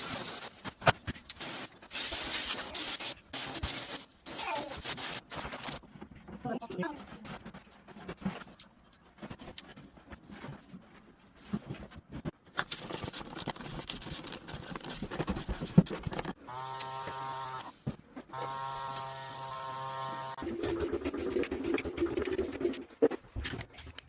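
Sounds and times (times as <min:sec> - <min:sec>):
small electric motor buzzing: 0:16.5 - 0:17.8, 0:18.4 - 0:20.4.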